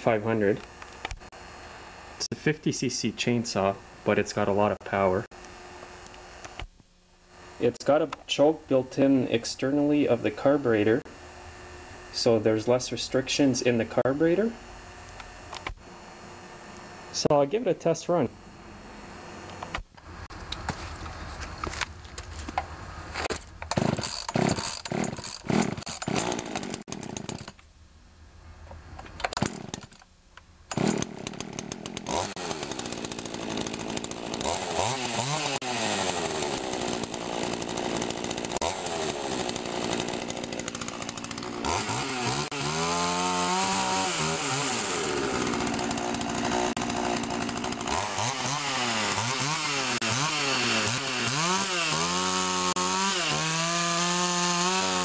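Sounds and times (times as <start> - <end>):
chainsaw engine revving: 7.3 - 7.8, 9.0 - 17.3, 22.7 - 27.6, 29.3 - 30.0, 30.7 - 55.0.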